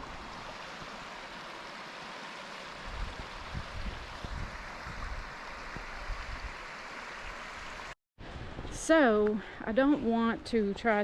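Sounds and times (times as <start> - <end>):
creek water rushing: 0.0 - 8.0.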